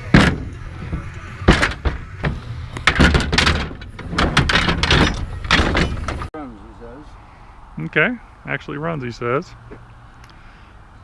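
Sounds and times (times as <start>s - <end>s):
objects clunking and rattling: 0.0s - 6.3s.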